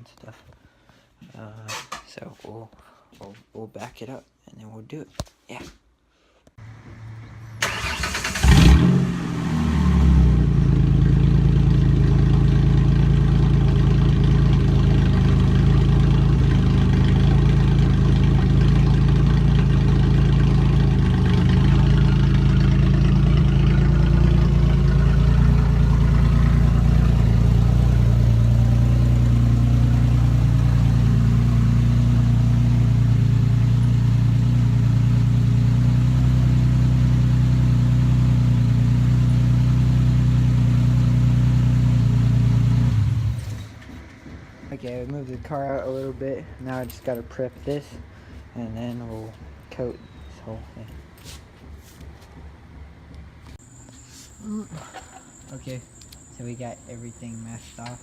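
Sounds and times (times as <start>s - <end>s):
car engine idling: 6.6s - 48.5s.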